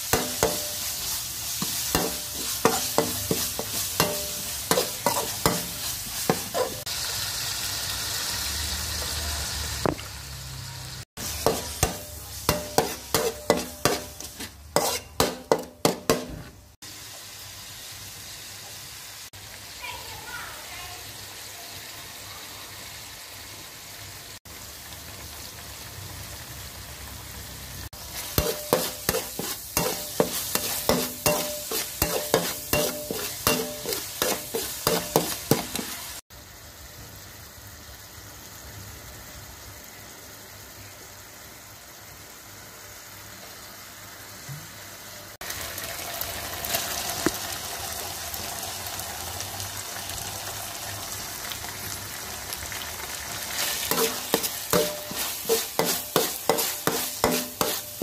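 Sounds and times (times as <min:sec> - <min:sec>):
meat sizzling in a wok: 0:00.0 - 0:58.0
metal spoon clanking on wok: 0:00.1 - 0:01.0, 0:01.6 - 0:06.8, 0:11.2 - 0:16.5, 0:28.3 - 0:36.1, 0:53.9 - 0:58.0.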